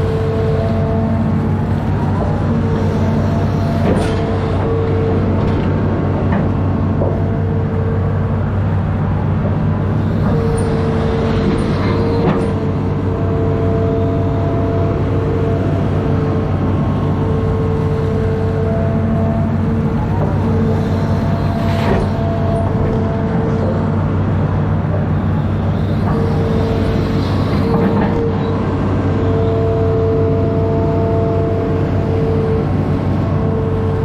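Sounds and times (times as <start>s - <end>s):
diesel engine running: 0.0s - 34.0s
whining tone: 0.0s - 34.0s.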